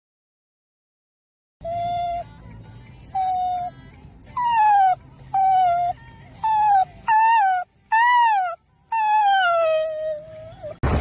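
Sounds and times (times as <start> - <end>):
dog whining and wailing: 1.6 - 2.4, 3.0 - 10.8.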